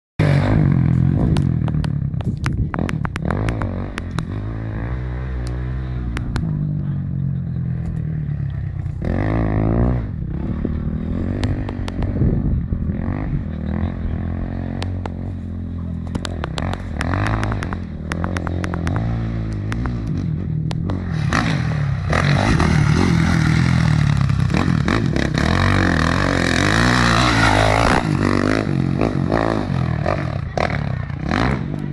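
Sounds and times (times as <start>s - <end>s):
motocross bike engine revving: 0.2s - 31.9s
sharp clicks and knocks: 0.9s - 4.7s, 5.4s - 6.5s, 11.4s - 12.2s, 14.8s - 15.4s, 16.0s - 21.6s.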